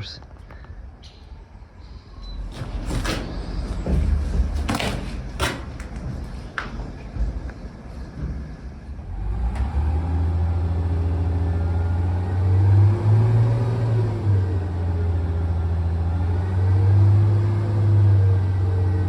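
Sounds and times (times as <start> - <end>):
heavy diesel engine revving: 8.9 - 19.0.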